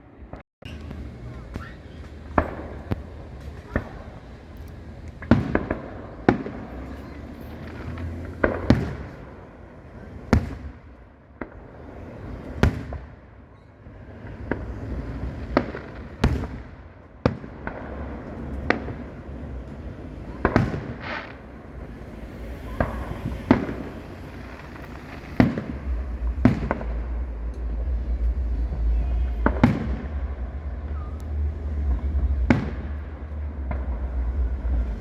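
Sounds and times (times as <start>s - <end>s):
firework shells bursting: 0.7s - 10.9s, 17.6s - 31.0s
low rumble: 17.7s - 35.0s.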